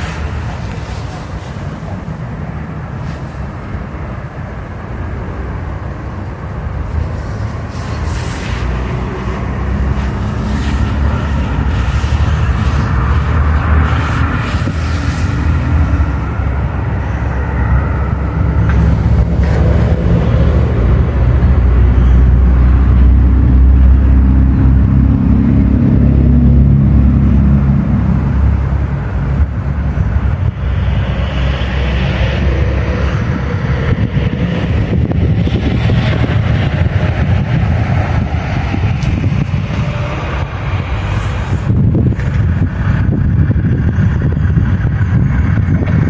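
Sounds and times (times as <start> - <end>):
train running past: 0.0 - 46.0.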